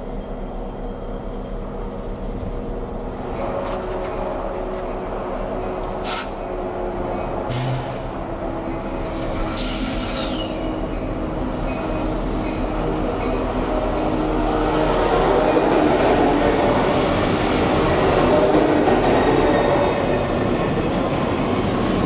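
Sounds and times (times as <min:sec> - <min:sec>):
freight train rolling past: 0:00.0 - 0:22.0
brief hiss: 0:06.0 - 0:06.4.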